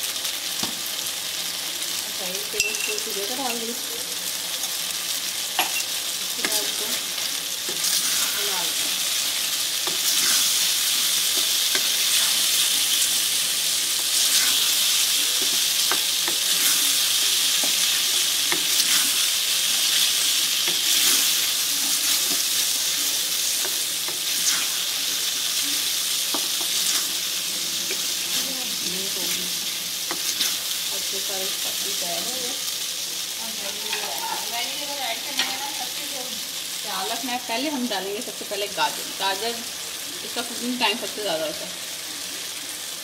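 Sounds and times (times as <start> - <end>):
chicken sizzling in a wok: 0.0 - 43.0
wooden spatula scraping a pan: 14.2 - 14.7.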